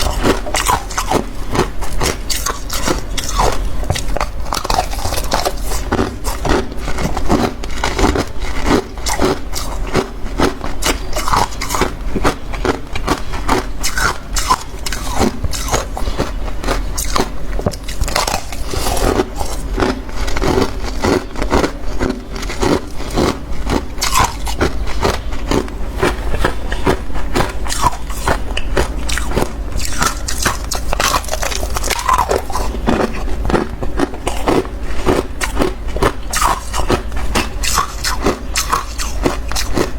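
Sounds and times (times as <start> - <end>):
chewing crunchy frost: 0.0 - 39.9.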